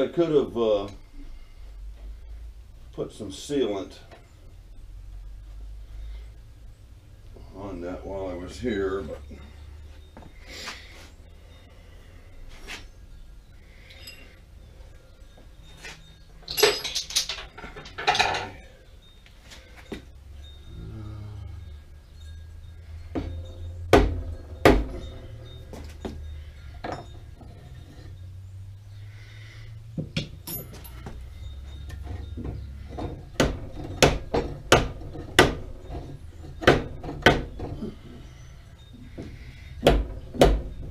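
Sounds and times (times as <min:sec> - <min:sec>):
metal tools clattering: 0:13.7 - 0:14.5, 0:15.1 - 0:20.6, 0:22.2 - 0:28.3, 0:30.1 - 0:40.9.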